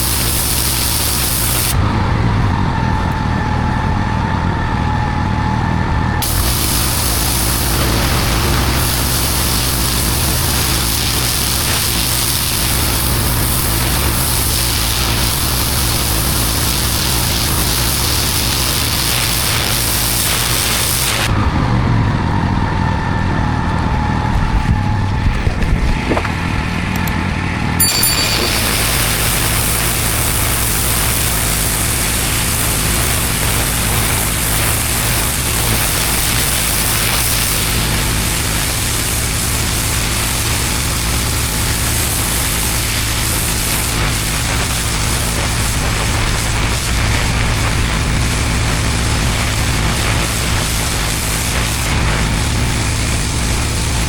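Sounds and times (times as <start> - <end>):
pressure washer engine running: 0.0 - 1.8, 6.2 - 21.3, 27.8 - 54.0
water jet hissing on paving: 0.0 - 1.8, 6.2 - 21.3, 27.8 - 54.0.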